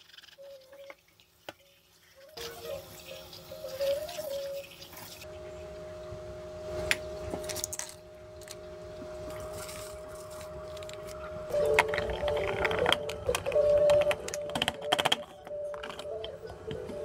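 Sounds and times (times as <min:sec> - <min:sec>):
steady low hum: 0:05.2 - 0:17.0.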